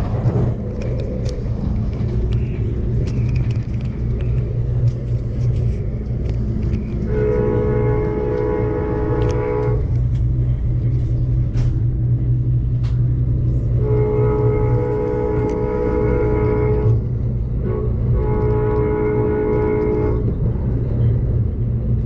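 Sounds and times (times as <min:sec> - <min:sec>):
train wheel clicks: 0:00.0 - 0:17.4, 0:18.0 - 0:22.0
train rumbling on rails: 0:00.0 - 0:22.0
train horn chord: 0:06.6 - 0:10.2, 0:13.5 - 0:20.4.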